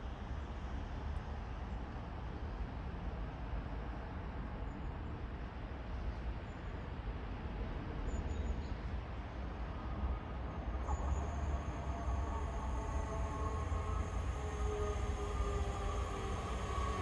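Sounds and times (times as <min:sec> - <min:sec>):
faint steady whine: 0:09.5 - 0:17.0
electric train rumble: 0:09.6 - 0:17.0.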